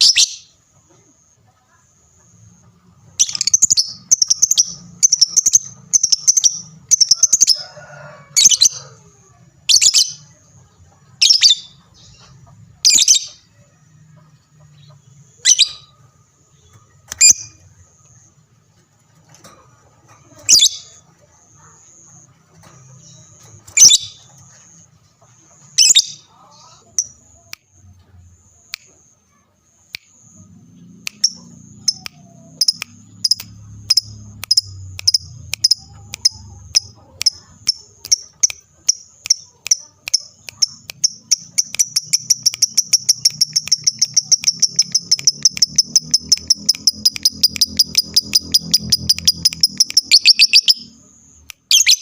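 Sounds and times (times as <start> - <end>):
lovebird chirping and trilling: 0.0 - 0.6, 3.1 - 7.6, 9.7 - 10.4, 11.1 - 13.6, 14.7 - 18.3, 20.3 - 21.0, 21.6 - 24.9, 25.6 - 27.5, 30.8 - 52.0.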